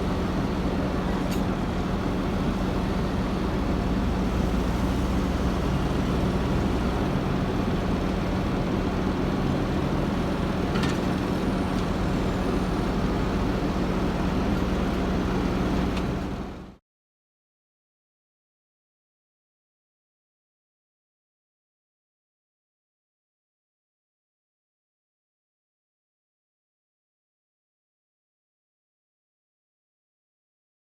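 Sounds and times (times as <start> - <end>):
tractor diesel engine under load: 0.0 - 16.8.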